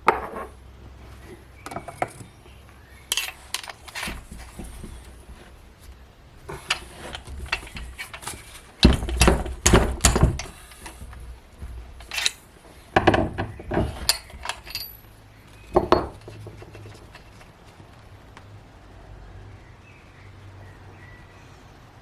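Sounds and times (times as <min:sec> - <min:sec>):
metal tools clinking: 0:03.1 - 0:05.4, 0:06.5 - 0:17.5.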